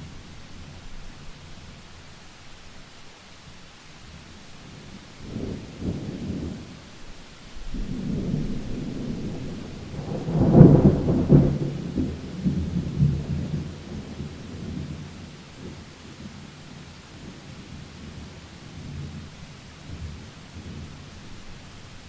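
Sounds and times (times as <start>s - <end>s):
steady rain: 0.0s - 22.0s
thunder rumbling: 7.6s - 16.3s.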